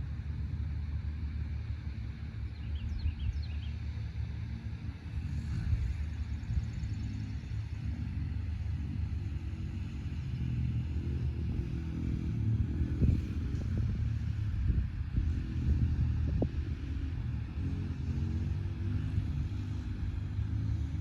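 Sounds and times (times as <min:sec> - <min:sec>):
dirt bike engine rumbling: 0:05.2 - 0:21.0.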